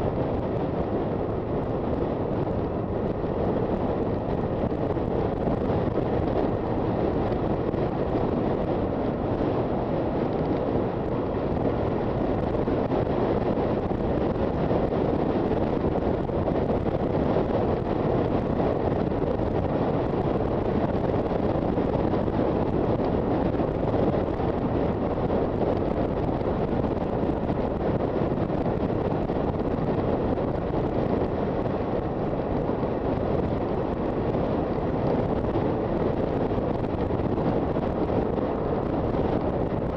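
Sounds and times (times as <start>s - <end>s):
road noise: 0.0s - 39.9s
wind rush on microphone: 0.0s - 39.9s.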